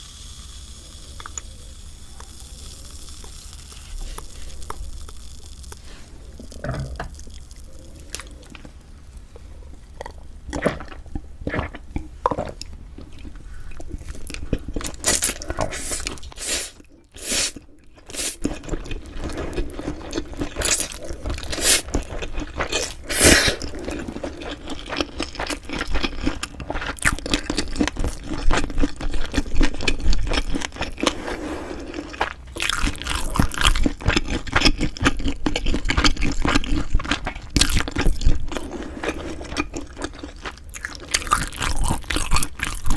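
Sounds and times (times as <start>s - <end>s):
person chewing food: 1.2s - 42.9s
wet mouth clicks: 21.4s - 21.9s.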